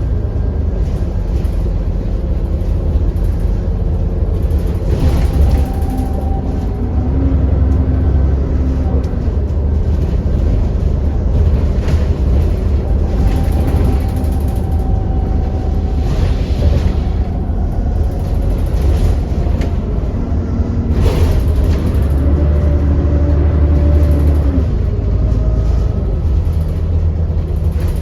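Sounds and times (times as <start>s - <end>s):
bus engine rumble with whine: 0.0s - 28.0s
rattling bus fittings: 0.8s - 6.9s, 9.0s - 20.3s, 20.9s - 22.8s, 26.3s - 28.0s.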